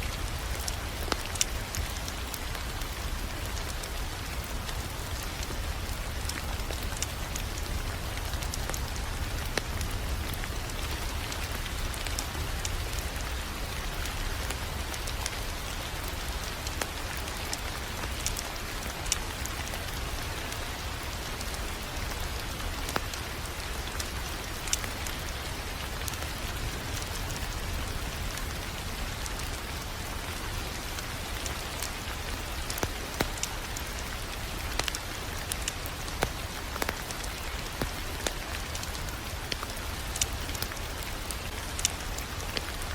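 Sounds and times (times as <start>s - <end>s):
fire popping and snapping: 0.0s - 42.9s
wood fire hissing: 22.8s - 42.9s.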